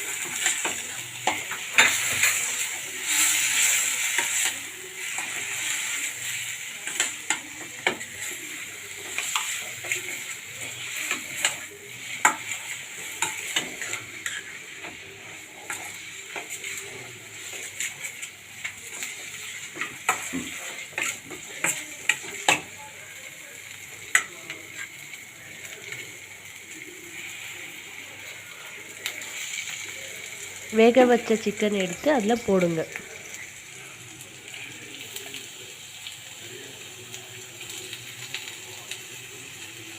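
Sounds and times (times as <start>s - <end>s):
spatula scraping a pan: 0.0s - 22.8s
vegetables sizzling in a pan: 0.0s - 39.9s.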